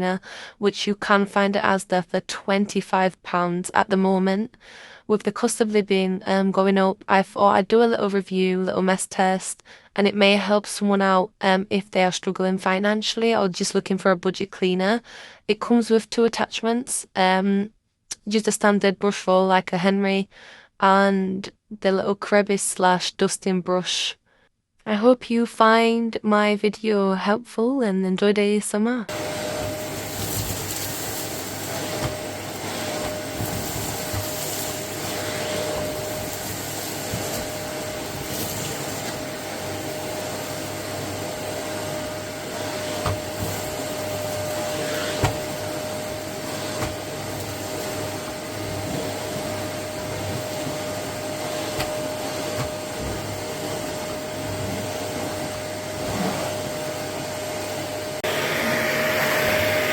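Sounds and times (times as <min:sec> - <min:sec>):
vacuum cleaner running: 0:29.1 - 0:59.9.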